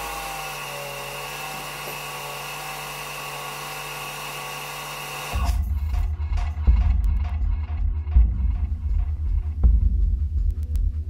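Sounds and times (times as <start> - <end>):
robotic lawnmower whine: 0.0 - 5.9
music with strong beat: 5.4 - 11.0.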